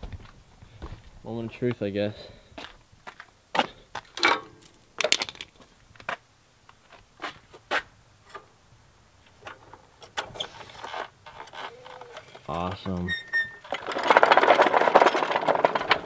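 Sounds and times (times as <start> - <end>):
metal parts knocking and clanking: 4.2 - 5.5, 11.2 - 16.0.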